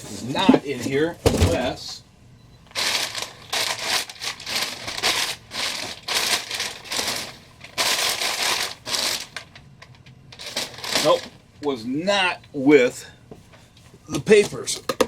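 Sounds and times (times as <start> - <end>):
packing paper rustling: 2.7 - 11.8.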